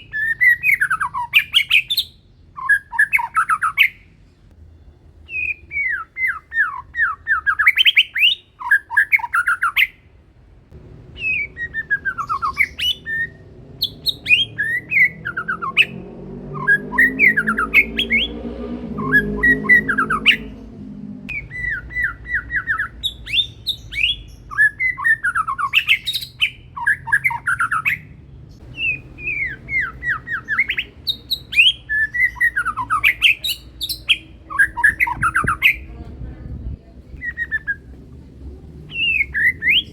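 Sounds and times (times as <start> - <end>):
bird singing whistled phrases: 0.0 - 4.0, 5.3 - 10.0, 11.2 - 20.6, 21.3 - 35.9, 37.2 - 37.9, 38.9 - 39.9.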